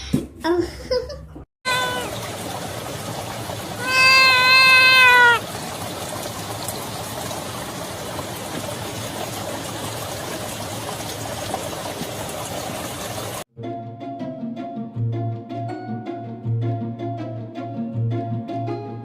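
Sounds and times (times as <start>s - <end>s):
cat meowing: 1.7s - 2.2s, 3.8s - 5.4s.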